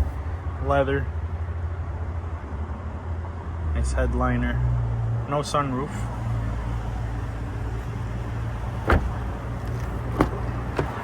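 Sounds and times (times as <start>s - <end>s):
pickup truck idling: 0.0s - 0.4s.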